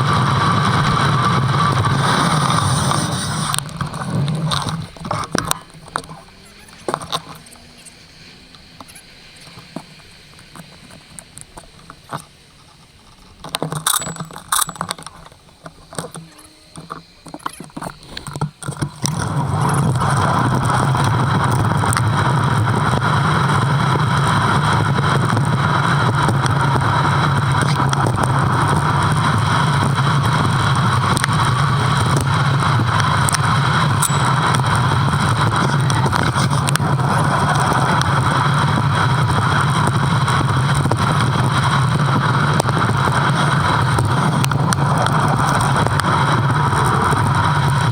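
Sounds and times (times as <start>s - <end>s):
loud rushing noise: 0.0s - 5.1s
bike rattles and clicks: 0.0s - 47.9s.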